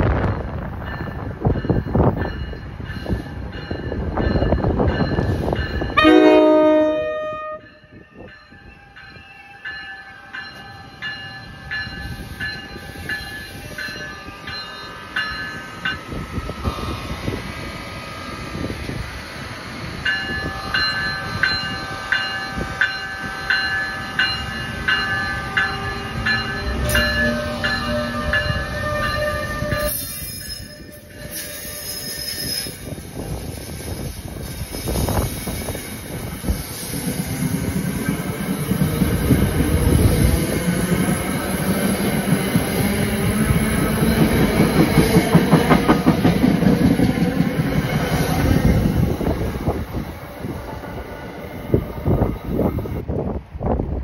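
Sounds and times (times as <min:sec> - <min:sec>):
train horn blast: 0:06.0 - 0:07.8, 0:27.1 - 0:30.0.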